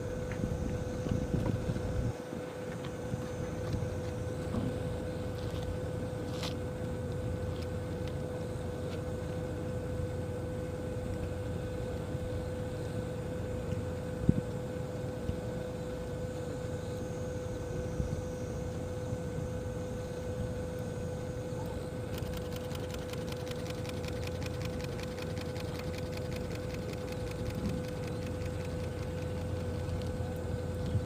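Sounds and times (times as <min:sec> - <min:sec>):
boat engine droning: 0:00.0 - 0:31.0
sharp click: 0:22.1 - 0:30.1.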